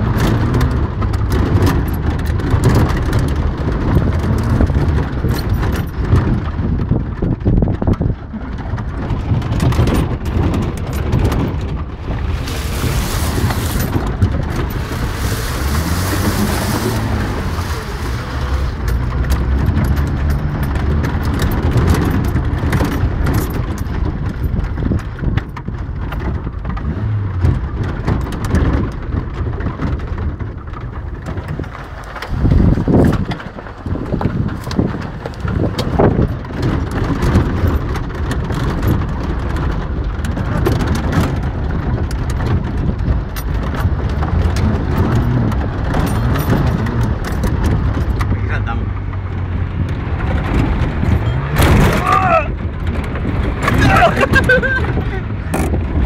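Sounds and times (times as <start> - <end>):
off-road vehicle engine running: 0.0 - 56.0
rushing rattling noise: 0.0 - 56.0
heavy jolts: 11.9 - 19.2.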